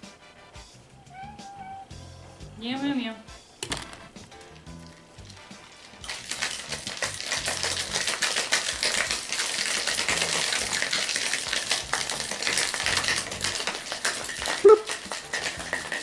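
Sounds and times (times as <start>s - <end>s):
ice rattling in cocktail shaker: 3.3s - 16.0s.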